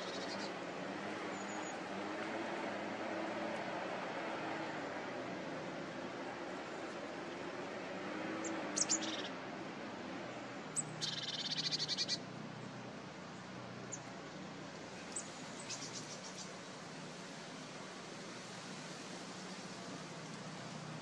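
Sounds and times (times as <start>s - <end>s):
steady background hiss: 0.0s - 21.0s
birds calling: 8.4s - 9.4s, 10.8s - 12.2s.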